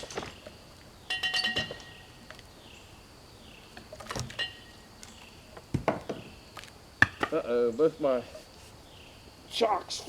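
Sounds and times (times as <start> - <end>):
metal clinking and clanking: 1.1 - 2.1, 3.9 - 4.8.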